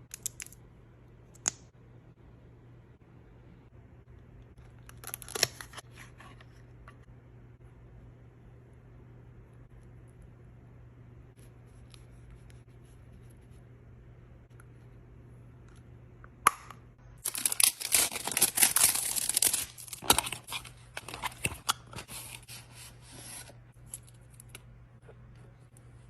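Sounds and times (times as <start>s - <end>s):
packaging crinkling and tearing: 4.8s - 5.9s, 17.2s - 22.6s.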